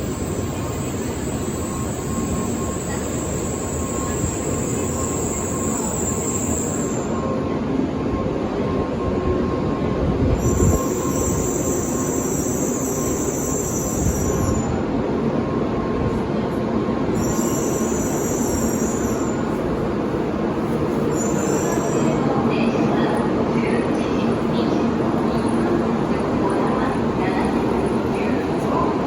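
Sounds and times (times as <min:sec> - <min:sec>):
train rumbling on rails: 0:00.0 - 0:29.0.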